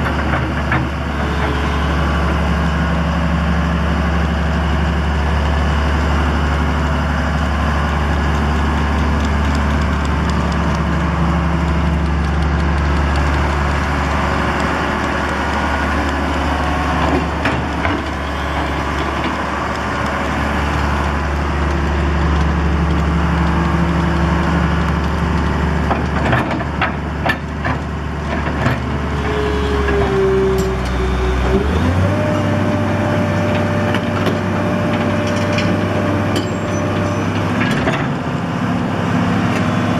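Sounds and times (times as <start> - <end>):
machine knocks and clanks: 0.0 - 1.6, 24.9 - 29.0
excavator diesel engine running: 0.0 - 39.9.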